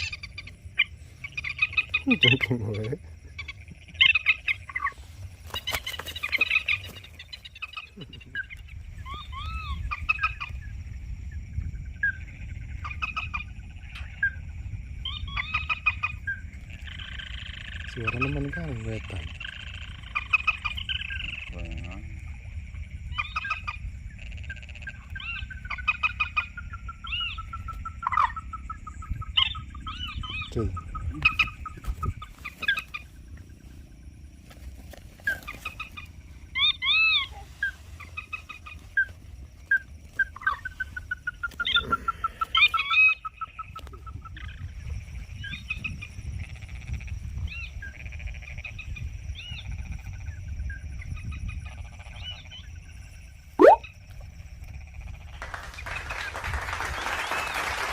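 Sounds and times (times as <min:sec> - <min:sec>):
moorhen clucking calls: 0:00.0 - 0:10.6, 0:53.6 - 0:53.9.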